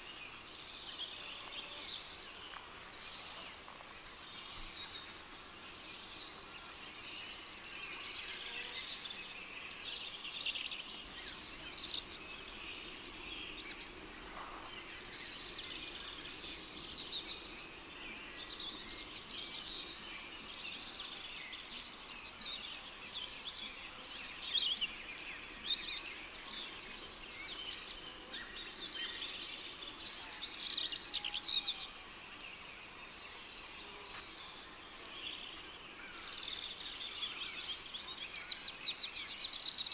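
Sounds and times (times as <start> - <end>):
cricket chirping: 31.9 - 37.9.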